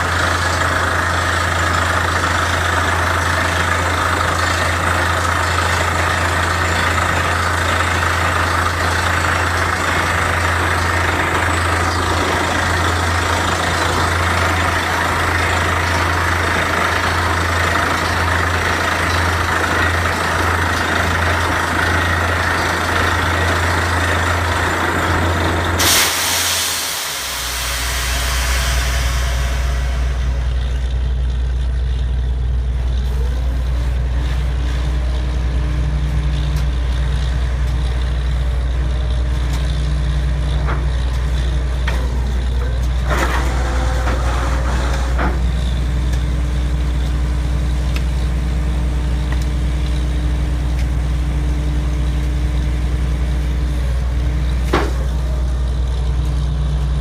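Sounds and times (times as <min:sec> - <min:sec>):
drilling rig engine running: 0:00.0 - 0:57.0
sudden hiss: 0:25.8 - 0:30.5.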